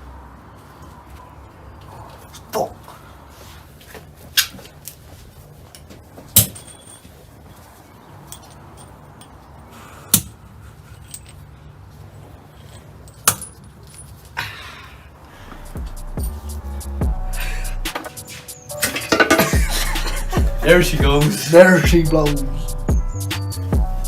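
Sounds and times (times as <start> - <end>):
metal tools clinking on engine parts: 5.6 - 7.5, 8.2 - 9.7, 10.8 - 11.6, 12.5 - 14.4, 18.0 - 19.7.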